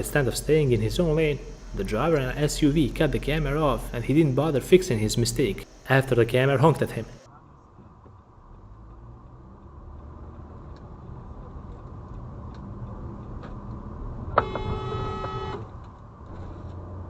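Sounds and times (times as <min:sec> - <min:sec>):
road and engine noise: 0:00.0 - 0:17.0
car horn honking: 0:14.4 - 0:15.7.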